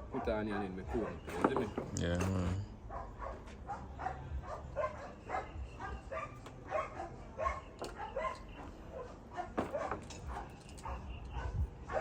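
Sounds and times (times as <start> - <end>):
dog yapping barks: 2.9 - 12.0.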